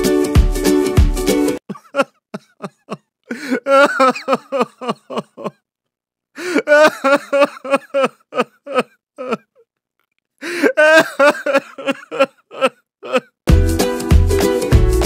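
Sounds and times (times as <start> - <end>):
person laughing: 1.7 - 5.6, 6.4 - 9.6, 10.4 - 13.4.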